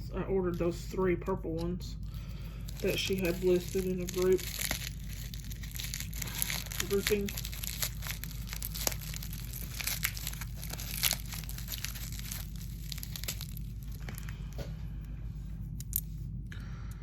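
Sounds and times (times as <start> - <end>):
plastic packaging crinkling: 2.5 - 14.7.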